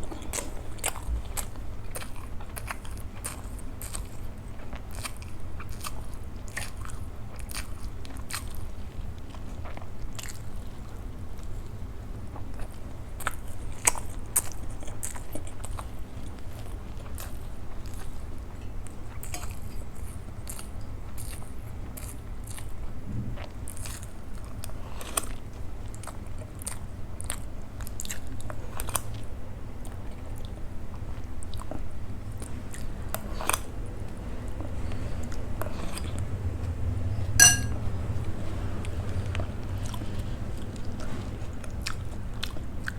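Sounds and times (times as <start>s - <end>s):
person chewing food: 0.0s - 11.6s, 23.4s - 33.7s
steady low hum: 32.4s - 42.5s.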